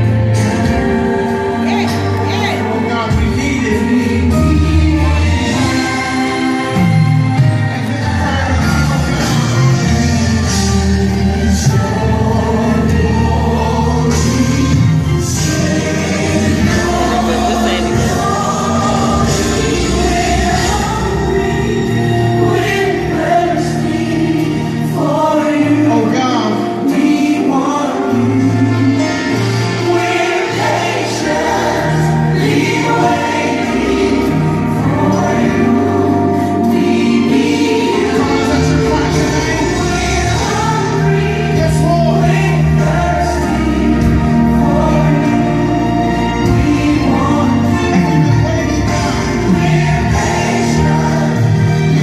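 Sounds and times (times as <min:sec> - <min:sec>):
band backing with bass: 0:00.0 - 0:52.0
choir singing gospel song: 0:00.0 - 0:52.0.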